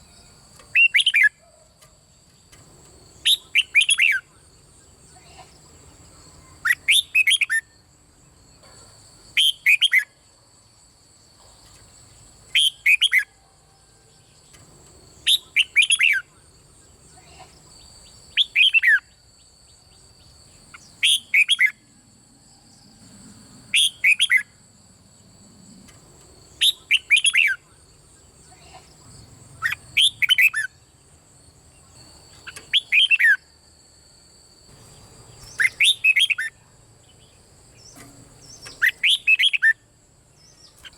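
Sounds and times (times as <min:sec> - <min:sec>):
bird singing whistled notes: 0:00.0 - 0:01.5, 0:03.2 - 0:05.2, 0:06.4 - 0:07.8, 0:09.3 - 0:10.2, 0:12.5 - 0:13.4, 0:15.2 - 0:17.1, 0:17.8 - 0:23.0, 0:23.7 - 0:24.6, 0:26.5 - 0:28.6, 0:29.6 - 0:31.0, 0:31.7 - 0:33.6, 0:34.9 - 0:40.9.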